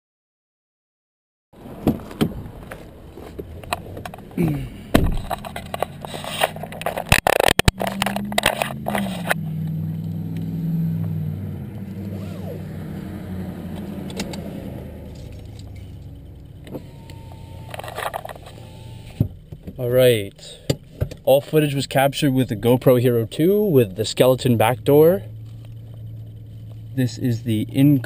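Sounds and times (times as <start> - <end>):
car engine starting and idling: 1.6 - 28.0
clicks and rattles: 5.0 - 9.4.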